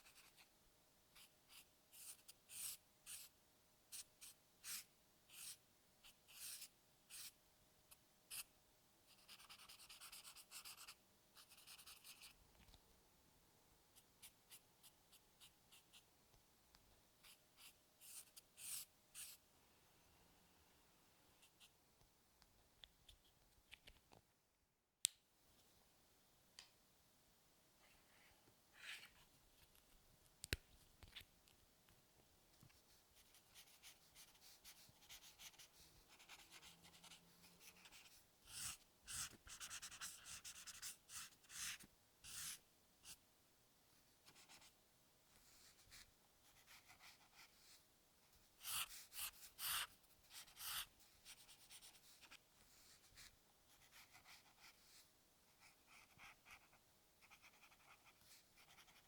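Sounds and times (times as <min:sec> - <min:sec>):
pencil scratching on paper: 0:01.2 - 0:03.3, 0:03.9 - 0:07.4, 0:09.1 - 0:12.3, 0:17.2 - 0:19.4, 0:33.2 - 0:42.6, 0:45.6 - 0:47.8, 0:48.6 - 0:55.0, 0:55.6 - 0:59.0.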